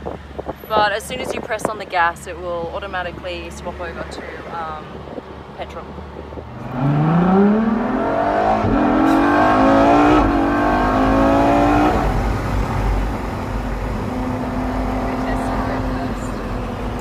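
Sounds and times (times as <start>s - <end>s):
car engine revving hard: 6.5s - 17.0s.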